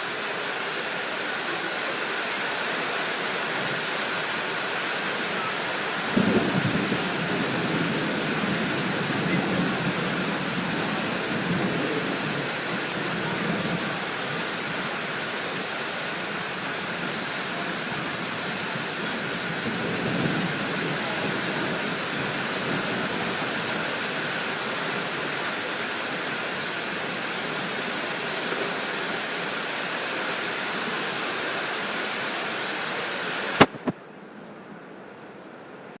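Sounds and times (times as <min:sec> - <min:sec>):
steady rushing storm noise: 0:00.0 - 0:36.0
distant thunder rumbles: 0:06.0 - 0:14.6
sharp click: 0:33.6 - 0:34.0.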